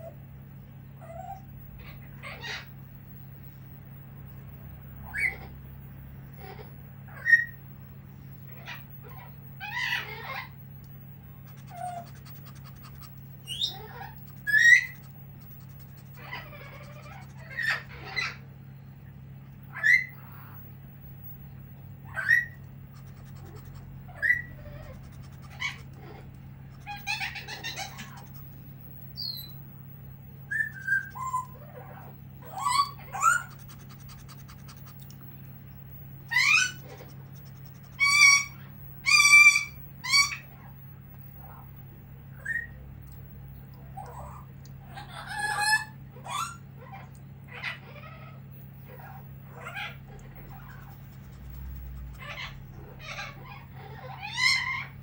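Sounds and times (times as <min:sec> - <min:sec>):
pet bird calling and whistling: 0:11.5 - 0:18.4, 0:22.1 - 0:28.5, 0:29.2 - 0:29.6, 0:30.5 - 0:31.7, 0:32.4 - 0:35.1, 0:36.3 - 0:40.5, 0:42.4 - 0:42.8.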